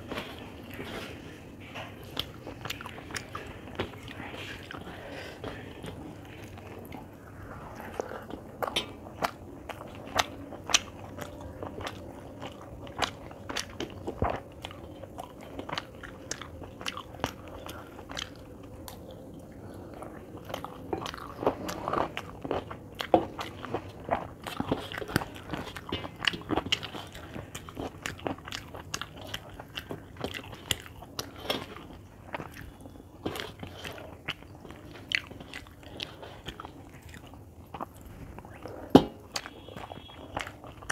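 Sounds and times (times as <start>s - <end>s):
person chewing food: 0.0s - 40.9s.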